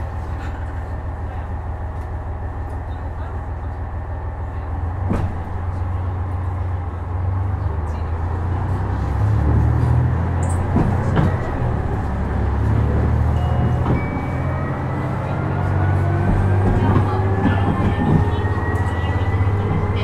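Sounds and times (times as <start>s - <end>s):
diesel engine drone: 0.0s - 20.0s
knocks from the track: 5.0s - 5.7s, 10.6s - 11.6s.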